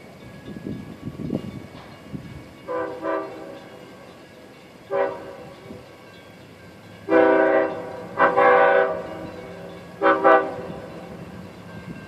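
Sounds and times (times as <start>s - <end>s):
train rumble: 0.0s - 12.0s
train air horn blasts: 2.7s - 3.7s, 4.9s - 5.8s, 7.1s - 11.1s.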